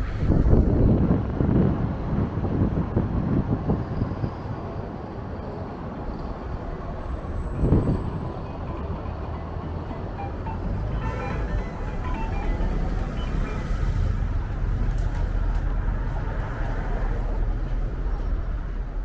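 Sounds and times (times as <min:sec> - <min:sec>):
strong wind buffeting microphone: 0:00.0 - 0:09.0.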